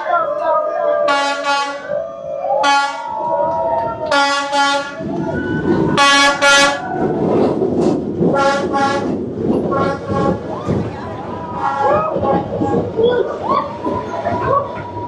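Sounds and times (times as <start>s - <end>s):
rumble of passing train: 0.0s - 15.0s
train horn blasts: 1.0s - 2.0s, 2.6s - 3.1s, 4.1s - 5.0s, 5.9s - 6.8s, 8.3s - 10.4s.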